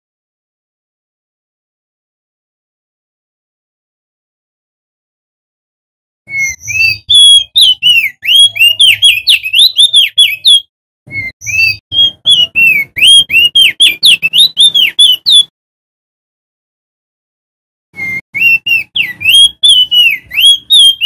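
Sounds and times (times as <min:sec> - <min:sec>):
bird singing whistled notes: 0:06.3 - 0:15.5, 0:18.0 - 0:21.0.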